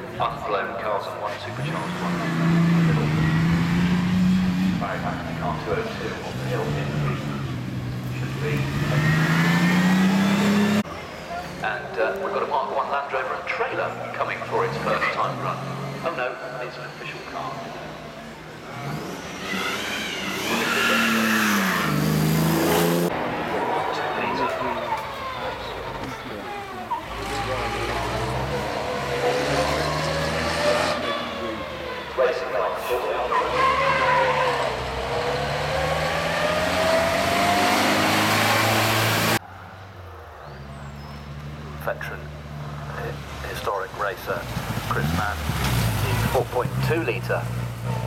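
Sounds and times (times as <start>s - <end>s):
sports car engine accelerating: 1.3s - 12.4s, 13.8s - 39.4s.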